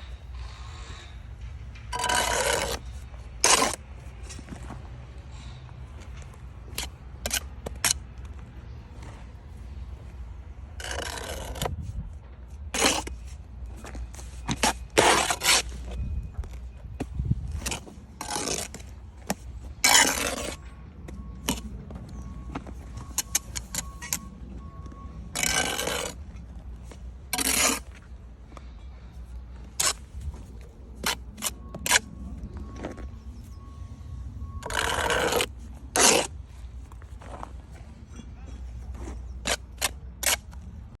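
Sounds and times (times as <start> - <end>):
bricks knocking and scraping: 1.9 - 4.7.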